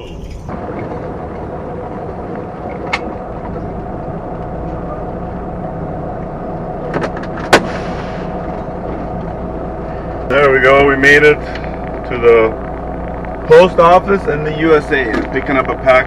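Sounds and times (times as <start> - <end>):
diesel truck engine running: 0.0 - 16.0.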